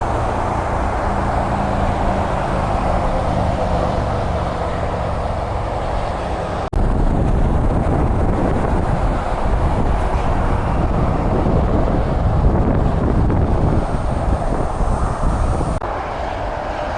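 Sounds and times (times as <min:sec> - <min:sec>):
highway traffic rush: 0:00.0 - 0:16.9
low rumble: 0:06.6 - 0:15.8.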